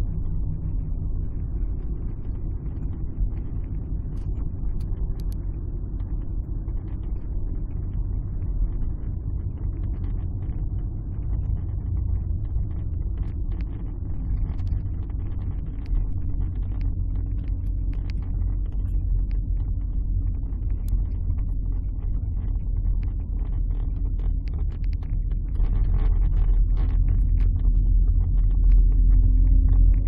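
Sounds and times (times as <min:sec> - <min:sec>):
light clicks and rattles: 0:11.2 - 0:30.0.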